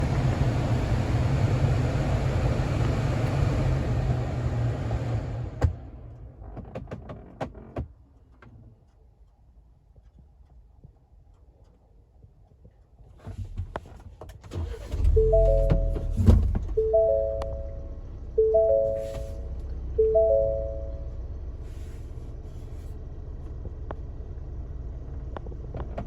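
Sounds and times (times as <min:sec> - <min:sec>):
clicks and ticks from dashboard: 0:06.1 - 0:14.8
car engine running: 0:14.6 - 0:26.0.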